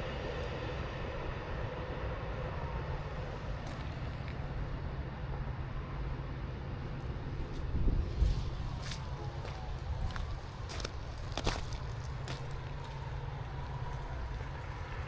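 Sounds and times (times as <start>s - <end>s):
train rumbling on tracks: 0.0s - 15.0s.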